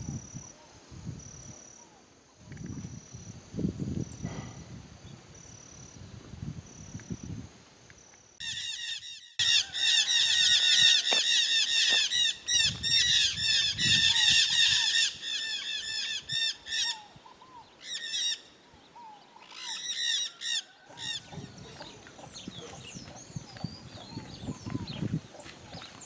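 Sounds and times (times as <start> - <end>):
birds squawking harshly: 8.4 - 18.5, 19.4 - 22.9.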